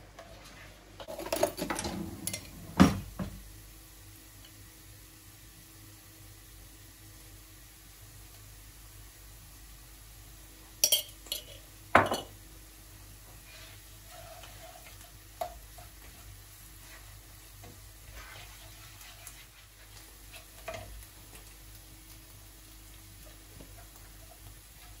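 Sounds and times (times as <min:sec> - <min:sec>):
utensils scraping and stirring: 0:00.5 - 0:02.6, 0:13.5 - 0:16.2, 0:16.8 - 0:21.4
dishes clinking and knocking: 0:01.1 - 0:03.4, 0:10.8 - 0:12.3.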